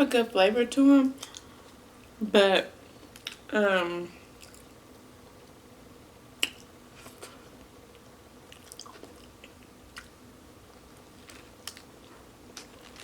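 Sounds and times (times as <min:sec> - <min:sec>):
person chewing and biting: 0:07.9 - 0:10.2, 0:11.1 - 0:13.0.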